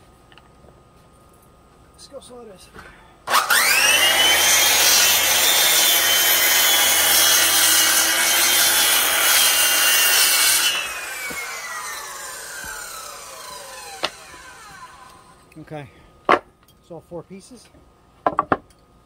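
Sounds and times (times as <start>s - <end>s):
circular saw cutting wood: 3.3s - 15.4s
saw blade spinning down: 3.3s - 15.4s.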